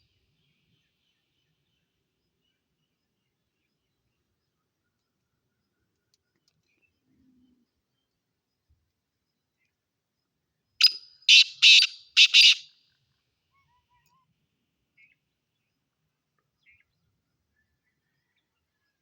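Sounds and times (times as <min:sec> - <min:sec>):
partridge calling harsh notes: 0:10.8 - 0:12.6.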